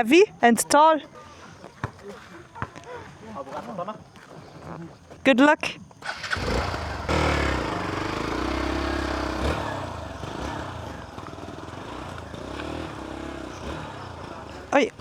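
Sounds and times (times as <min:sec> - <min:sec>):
motorbike engine revving: 0:06.0 - 0:15.0.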